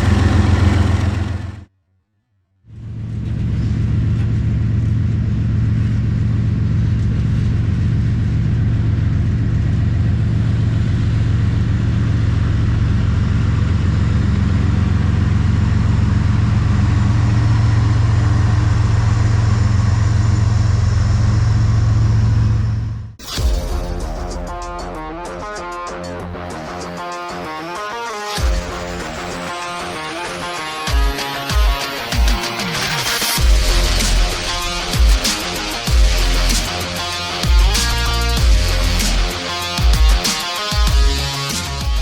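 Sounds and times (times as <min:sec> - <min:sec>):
engine humming steadily: 0:00.0 - 0:01.7, 0:02.8 - 0:23.2, 0:33.4 - 0:40.4.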